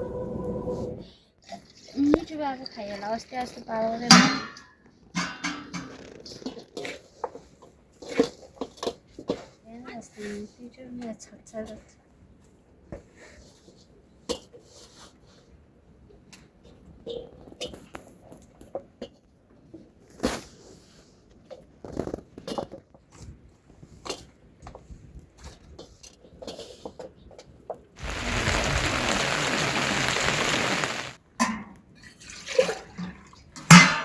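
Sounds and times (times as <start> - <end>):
water pouring: 28.0 - 31.2.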